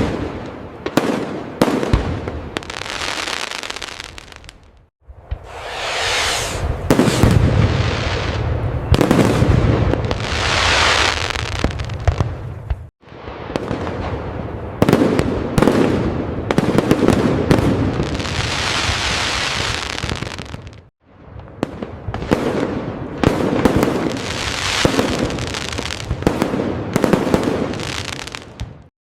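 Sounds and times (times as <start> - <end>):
firework crackling: 2.6 - 4.8, 5.4 - 14.1, 23.3 - 28.9.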